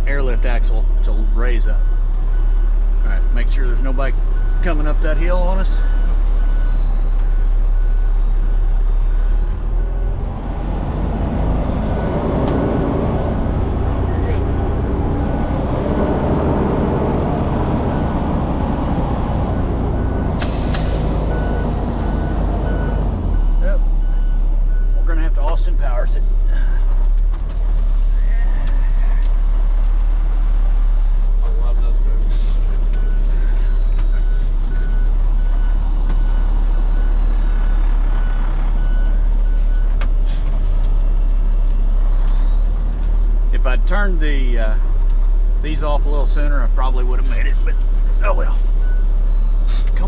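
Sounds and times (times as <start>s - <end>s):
diesel truck engine running: 0.0s - 50.0s
backup alarm beeping: 1.0s - 26.8s.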